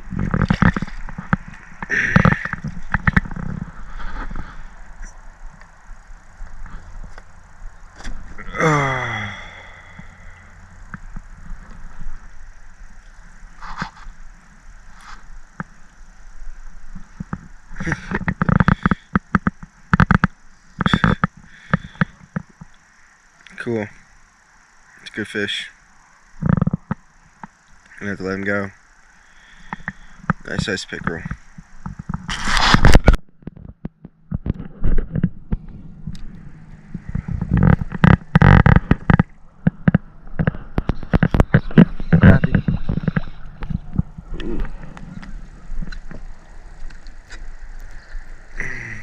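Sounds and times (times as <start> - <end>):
knocks and scrapes on kayak hull: 0.1 - 4.6, 13.6 - 14.2, 29.7 - 48.2.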